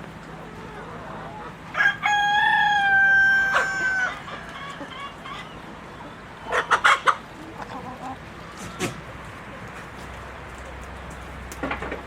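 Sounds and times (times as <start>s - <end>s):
rooster crowing: 1.7s - 4.9s.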